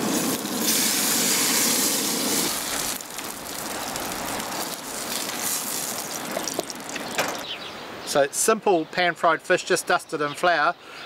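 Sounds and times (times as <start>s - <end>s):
fish sizzling in a frying pan: 0.0s - 7.2s.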